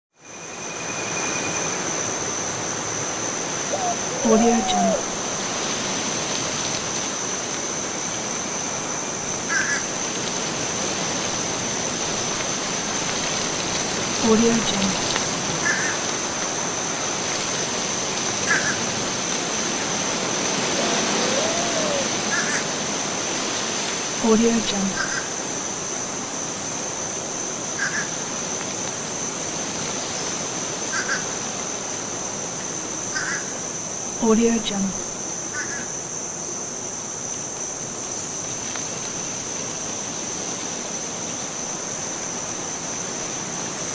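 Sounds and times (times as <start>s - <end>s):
insect drone: 0.1s - 43.9s
thin high tone: 0.2s - 2.1s
steady rushing hiss: 0.3s - 43.9s
short soft call: 20.7s - 22.4s.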